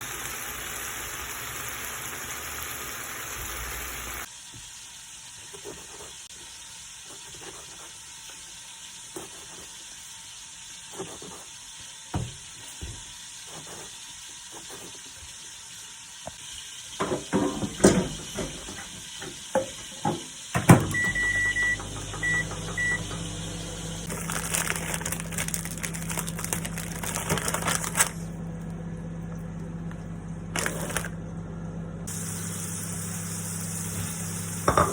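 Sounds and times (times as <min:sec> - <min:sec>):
low appliance hum: 0:10.9 - 0:34.9
electronic appliance beeps: 0:20.7 - 0:24.1.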